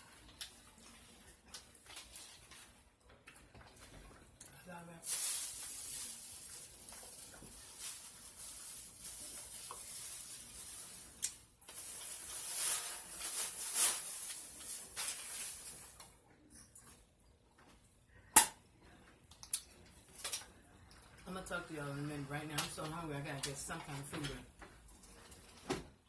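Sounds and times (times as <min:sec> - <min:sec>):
chewing and crunching food: 0:00.0 - 0:04.7, 0:24.5 - 0:26.0.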